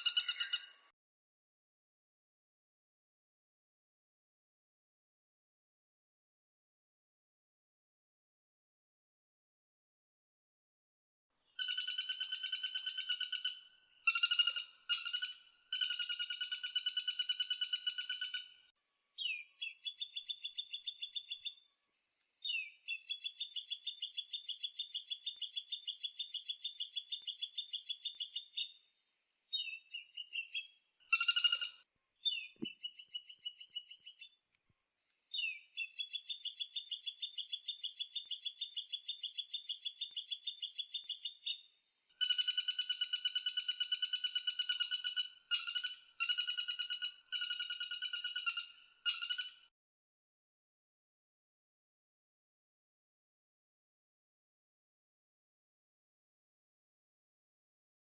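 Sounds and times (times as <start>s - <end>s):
woodpecker rattling trills: 0.0s - 0.8s.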